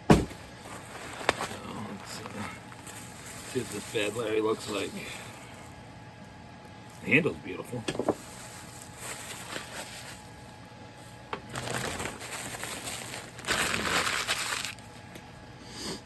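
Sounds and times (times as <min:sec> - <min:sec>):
packing material crinkling: 0:00.4 - 0:05.8, 0:08.1 - 0:15.0.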